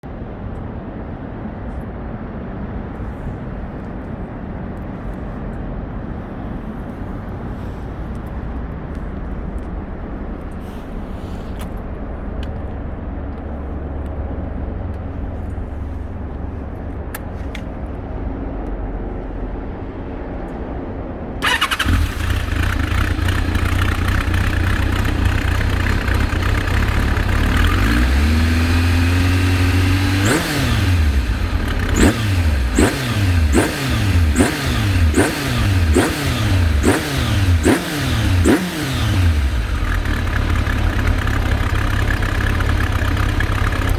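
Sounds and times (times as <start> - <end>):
motorcycle engine revving: 21.4 - 43.9.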